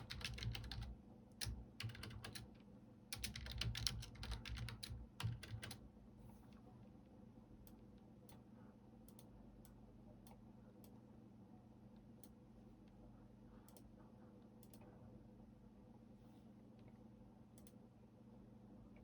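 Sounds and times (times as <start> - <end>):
computer keyboard clicks: 0.0 - 2.5, 3.2 - 5.8
low steady hum: 0.0 - 19.0.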